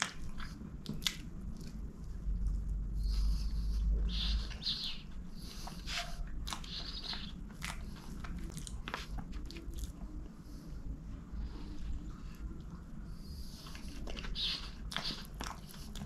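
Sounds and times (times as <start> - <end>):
chewing with wet mouth sounds: 0.0 - 16.0.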